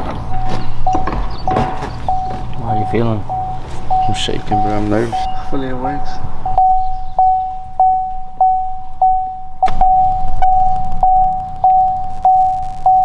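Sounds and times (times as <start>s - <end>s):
sharp thunk: 0.0s - 4.0s
vehicle warning chime: 0.0s - 13.0s.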